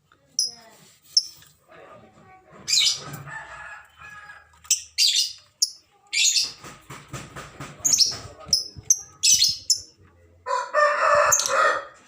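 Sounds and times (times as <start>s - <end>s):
birds chirping shrill calls: 4.7s - 6.6s.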